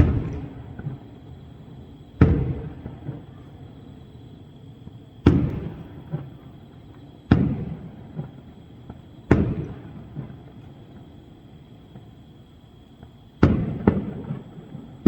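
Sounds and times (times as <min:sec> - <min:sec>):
faint firework pops: 0:00.0 - 0:01.2, 0:02.2 - 0:03.6, 0:04.8 - 0:11.2, 0:13.0 - 0:15.0
firework booms: 0:00.0 - 0:03.8, 0:04.8 - 0:06.6, 0:07.3 - 0:10.6, 0:13.4 - 0:15.0.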